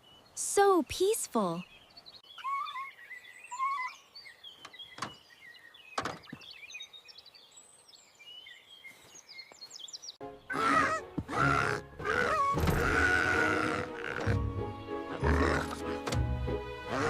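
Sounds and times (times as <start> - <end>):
small birds chirping: 0.0 - 14.4
music: 10.2 - 17.0
voice-like grunting: 15.1 - 16.0.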